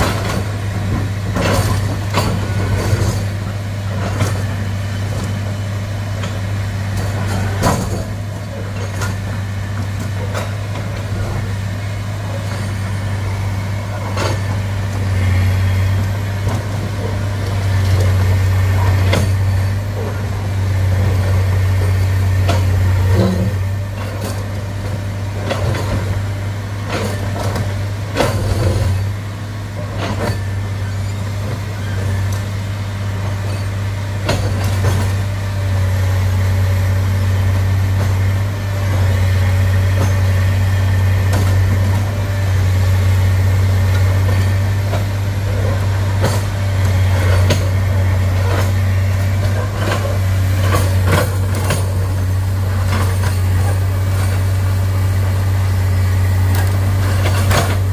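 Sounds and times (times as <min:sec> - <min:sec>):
diesel engine running: 0:00.0 - 0:57.9
sharp clanks and knocks: 0:43.9 - 0:54.6.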